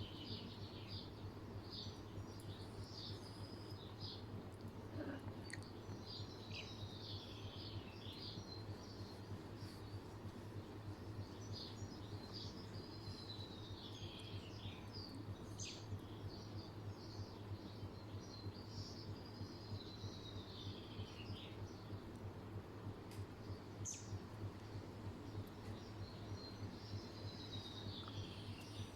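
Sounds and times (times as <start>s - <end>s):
low hum: 0.0s - 28.9s
birds chirping and singing: 5.4s - 21.9s, 23.5s - 28.9s.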